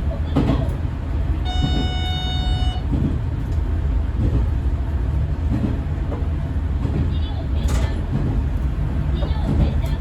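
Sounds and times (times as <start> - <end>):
railcar rumbling: 0.0 - 10.0
train horn toot: 1.4 - 2.9.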